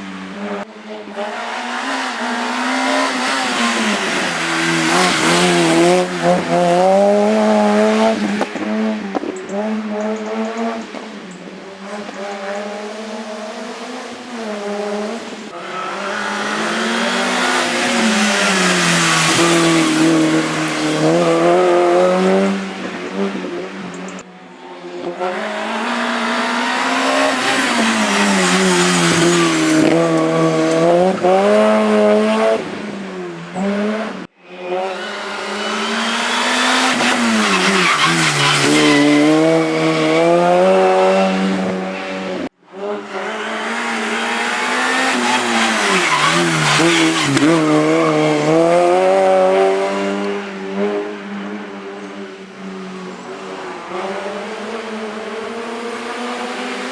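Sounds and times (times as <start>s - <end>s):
race car engines revving: 0.0s - 56.9s
tyres squealing: 35.6s - 39.7s, 43.2s - 48.8s.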